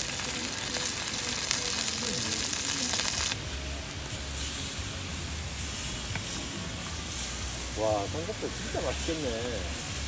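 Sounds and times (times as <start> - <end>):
meat sizzling on a griddle: 0.0 - 10.0.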